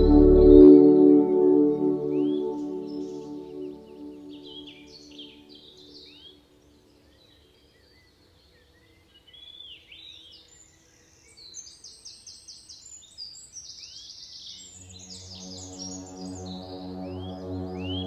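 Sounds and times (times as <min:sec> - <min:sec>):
buzzy bird trill: 0:00.0 - 0:01.0
soft sustained music: 0:00.0 - 0:07.2, 0:14.6 - 0:18.0.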